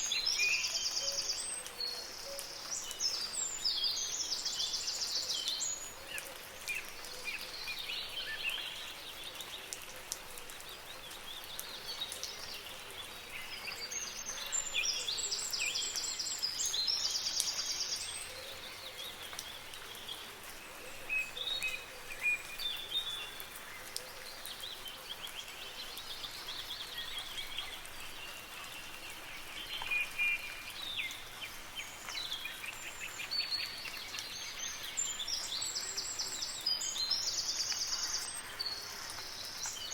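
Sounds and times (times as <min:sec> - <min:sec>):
soft rain hiss: 0:00.0 - 0:39.9
birds singing and chirping: 0:20.9 - 0:39.9.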